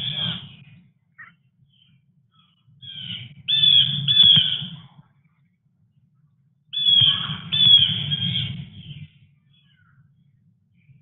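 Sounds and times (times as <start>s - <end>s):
bird giving harsh calls: 2.4s - 4.8s, 6.7s - 9.9s.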